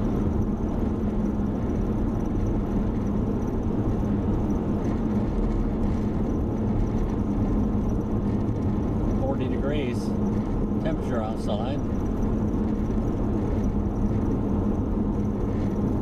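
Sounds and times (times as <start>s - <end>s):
car engine and tyres droning: 0.0s - 16.0s.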